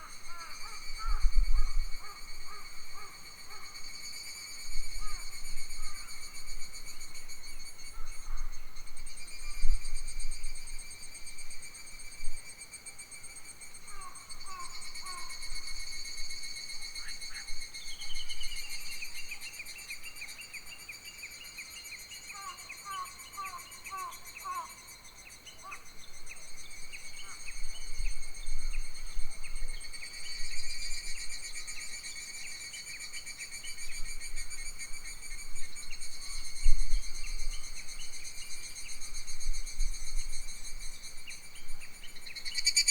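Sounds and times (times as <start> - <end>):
insect chorus: 0.0 - 42.9
wind rumble on microphone: 0.5 - 3.0, 4.7 - 11.6, 27.2 - 31.4, 33.8 - 42.0.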